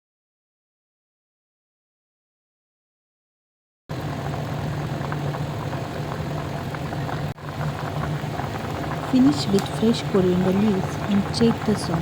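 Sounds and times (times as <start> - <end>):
curry bubbling in a pan: 3.9 - 12.0
steady low hum: 3.9 - 12.0.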